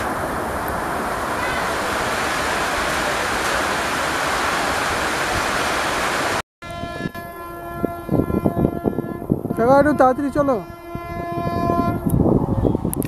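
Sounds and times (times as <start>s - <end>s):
train rushing past: 0.0s - 6.4s.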